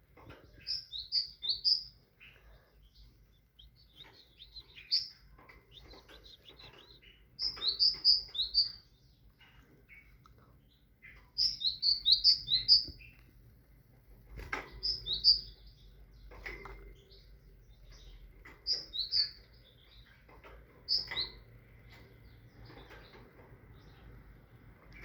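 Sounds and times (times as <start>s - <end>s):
great tit singing: 0.4s - 13.3s, 14.7s - 24.1s.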